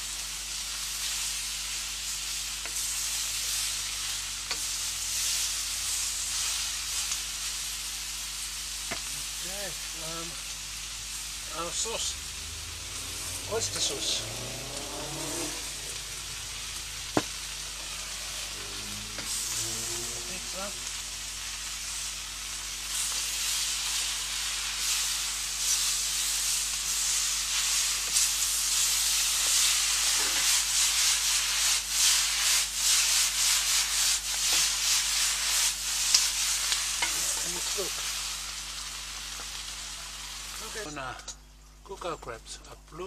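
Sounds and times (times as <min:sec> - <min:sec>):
food sizzling in a hot pan: 0:00.0 - 0:41.8
scraping while stirring noodles: 0:28.9 - 0:38.1.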